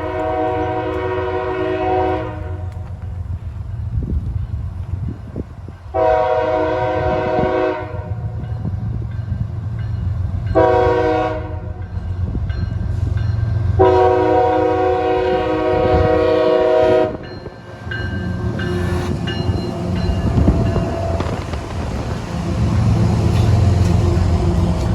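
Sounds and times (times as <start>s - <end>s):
locomotive air horn blasts: 0.0s - 2.8s, 5.9s - 8.2s, 10.6s - 11.8s, 13.8s - 17.2s
train rumble: 0.0s - 24.9s.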